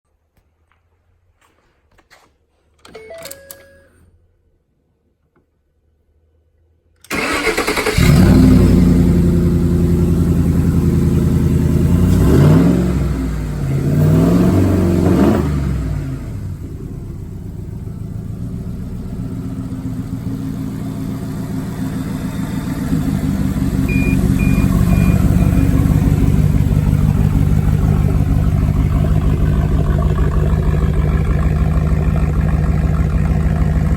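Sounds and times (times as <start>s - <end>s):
car engine starting and idling: 7.0s - 33.9s
engine revving: 7.1s - 16.7s, 20.4s - 33.9s
short high beeps: 23.9s - 25.8s.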